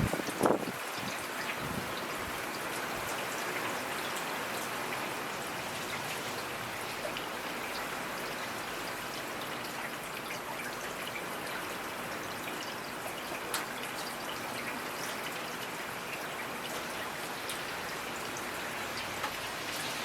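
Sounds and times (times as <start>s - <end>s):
raindrops pattering: 0.0s - 20.0s
rain hissing: 17.5s - 20.0s.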